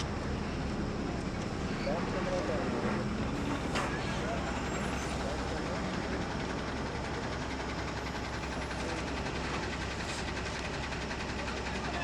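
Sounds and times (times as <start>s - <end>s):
engine idling rumble: 0.0s - 12.0s.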